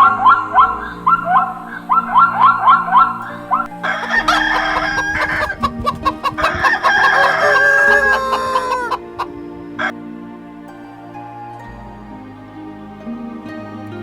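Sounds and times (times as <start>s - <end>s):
rooster crowing: 0.0s - 9.9s
soft background music: 0.0s - 14.0s.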